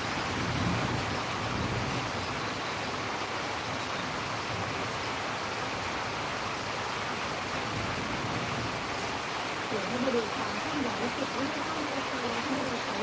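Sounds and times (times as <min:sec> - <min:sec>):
low rumble of thunder: 0:00.0 - 0:02.4
rain hissing: 0:00.0 - 0:13.0.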